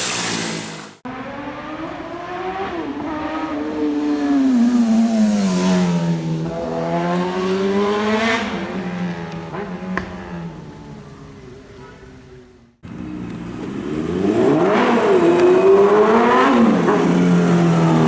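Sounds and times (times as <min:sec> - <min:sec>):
motorcycle engine revving: 0:00.0 - 0:11.4, 0:12.9 - 0:18.0.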